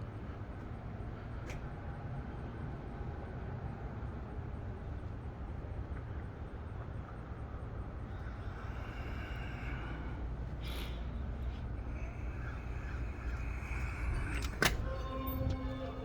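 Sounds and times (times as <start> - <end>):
low outdoor rumble: 0.0 - 16.0
faint higher tones: 11.8 - 16.0.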